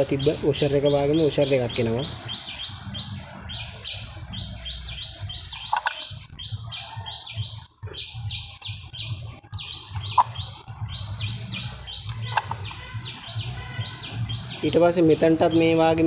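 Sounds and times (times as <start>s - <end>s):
bird chirping: 0.0s - 16.0s
sharp clicks: 11.9s - 12.9s.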